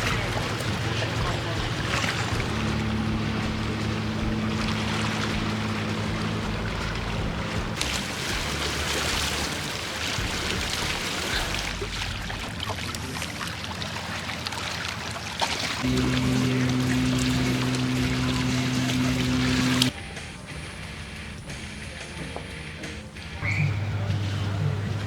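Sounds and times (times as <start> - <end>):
motor humming: 0.0 - 8.7, 15.8 - 19.9, 23.4 - 25.0
rushing splashing water: 0.0 - 19.9.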